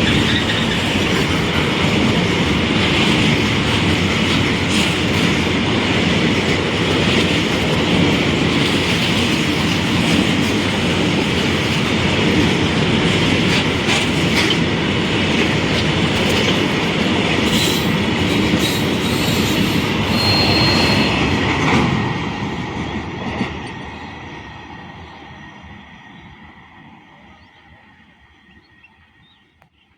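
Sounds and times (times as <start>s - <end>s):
high wheel squeal: 0.0s - 1.1s, 18.6s - 21.4s
train wheels rumbling on rail: 0.0s - 29.4s.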